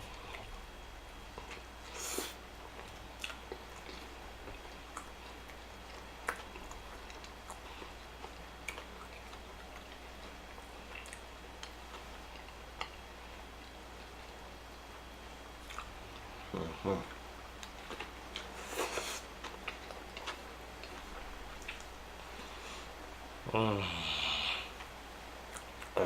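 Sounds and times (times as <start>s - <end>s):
close chewing of food: 1.3s - 14.6s, 15.5s - 23.0s.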